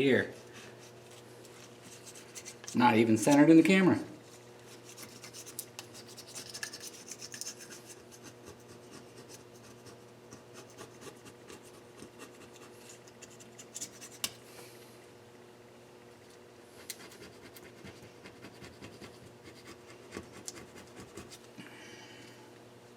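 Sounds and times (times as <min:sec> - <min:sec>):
faint steady hum: 0:00.0 - 0:22.9
hand scraping and scrubbing: 0:04.7 - 0:09.7.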